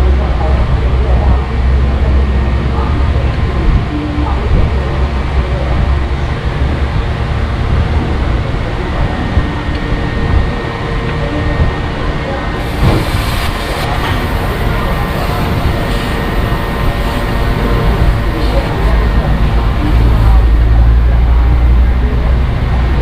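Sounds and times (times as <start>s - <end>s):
high hiss: 12.6s - 19.2s
truck diesel engine rumbling: 12.6s - 23.0s.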